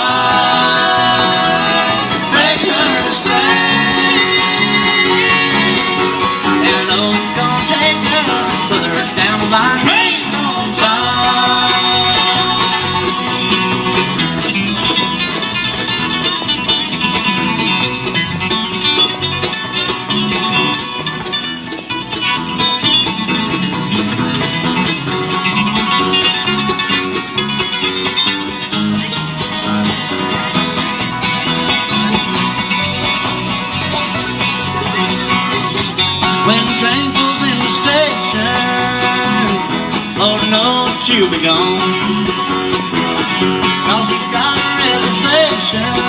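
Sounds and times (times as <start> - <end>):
acoustic guitar picking: 0.0 - 46.0
banjo picking: 0.0 - 46.0
bass: 0.0 - 46.0.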